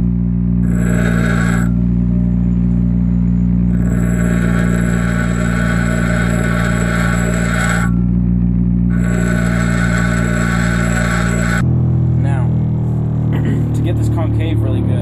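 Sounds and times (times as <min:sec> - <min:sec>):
bench grinder motor hum: 0:00.0 - 0:08.2, 0:08.8 - 0:11.7
steel grinding hiss: 0:00.6 - 0:01.8, 0:03.7 - 0:08.0, 0:08.9 - 0:11.6.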